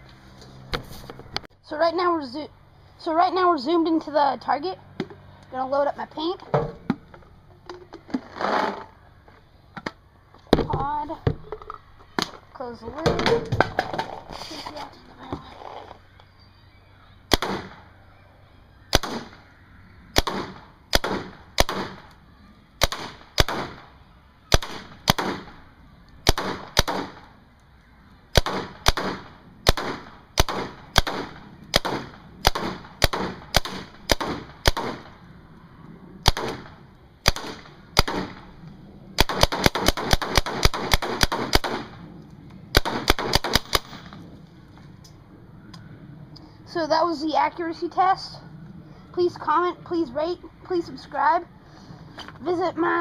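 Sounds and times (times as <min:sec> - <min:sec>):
paintball marker firing: 0:17.3 - 0:17.8, 0:18.9 - 0:19.4, 0:20.1 - 0:22.1, 0:22.8 - 0:23.9, 0:24.5 - 0:25.6, 0:26.2 - 0:27.3, 0:28.3 - 0:35.2, 0:36.2 - 0:38.5, 0:39.2 - 0:41.9.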